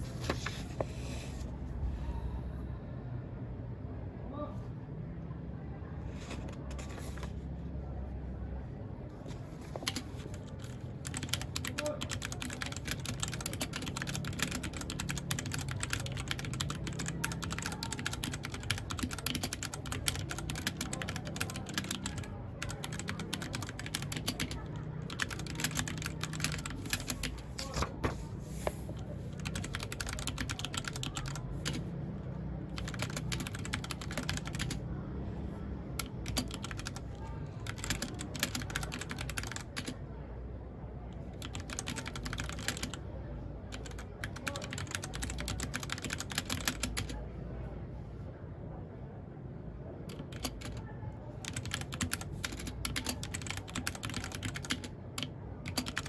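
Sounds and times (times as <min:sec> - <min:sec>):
mechanical keyboard key clicks: 0:37.6 - 0:39.9, 0:43.8 - 0:47.1, 0:51.4 - 0:56.0.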